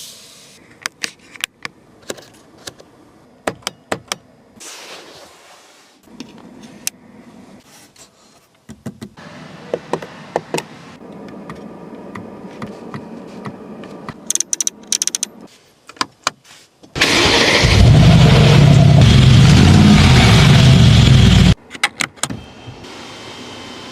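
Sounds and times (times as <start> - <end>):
car engine starting and running: 17.0 - 21.6.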